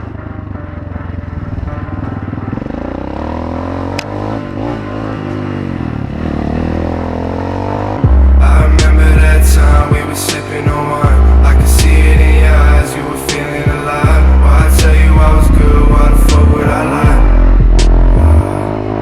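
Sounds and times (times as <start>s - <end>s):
loud bass-heavy music: 0.0s - 19.0s
motorcycle engine revving: 0.4s - 19.0s.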